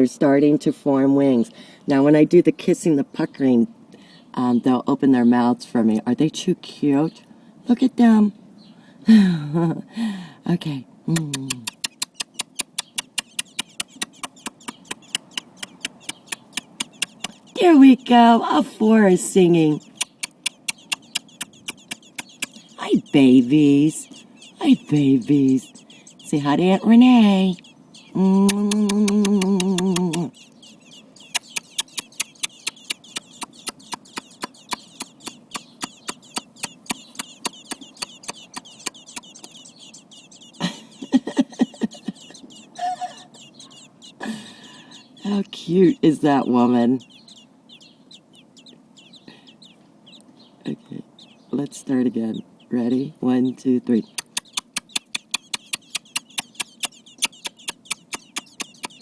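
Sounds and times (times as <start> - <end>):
nestlings begging peeps: 0.0 - 8.8, 10.2 - 59.0
kissing lip smacks: 11.1 - 17.4, 20.0 - 22.7, 28.5 - 30.4, 31.2 - 39.6, 54.2 - 59.0.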